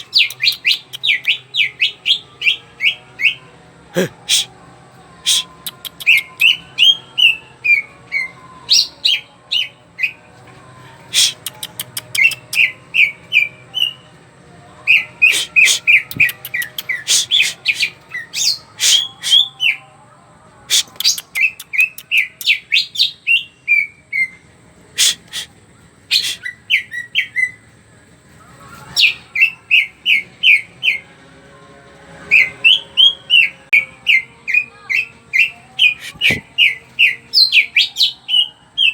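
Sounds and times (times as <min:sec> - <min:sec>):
sharp clicks: 0:11.4 - 0:12.5.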